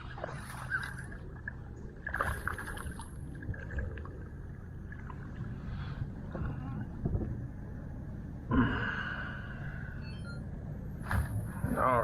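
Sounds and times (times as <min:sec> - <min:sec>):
water splash: 0:00.0 - 0:04.1
wind noise: 0:01.7 - 0:09.2.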